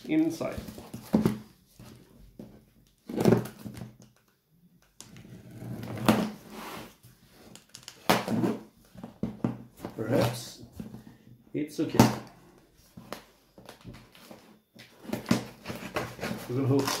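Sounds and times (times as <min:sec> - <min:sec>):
packaging rustling and scraping: 0:12.8 - 0:17.0.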